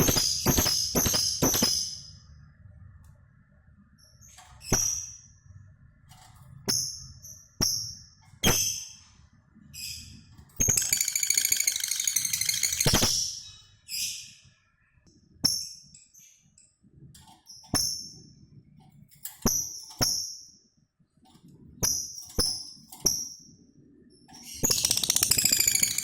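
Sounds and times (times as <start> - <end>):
lovebird chirping: 9.8 - 16.5, 24.4 - 26.0
bird chattering trill: 10.7 - 13.2, 24.6 - 26.0.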